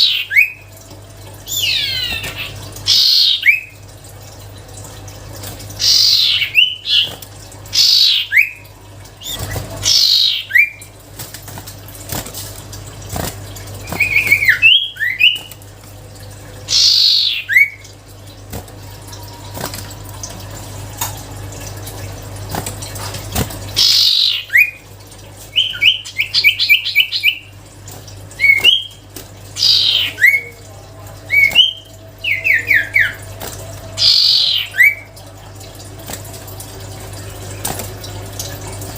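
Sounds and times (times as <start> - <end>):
bird whistling song: 9.2 - 10.8, 13.8 - 15.5, 16.7 - 17.8, 25.5 - 27.5, 28.4 - 29.0
bird rapid repeated notes: 13.2 - 15.6, 23.7 - 24.8.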